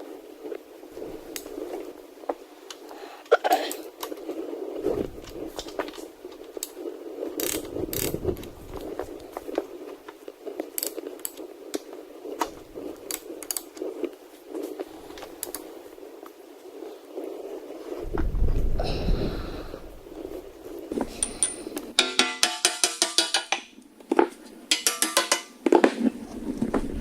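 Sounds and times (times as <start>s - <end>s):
hand tools clinking on metal: 21.0s - 23.7s, 24.7s - 25.8s.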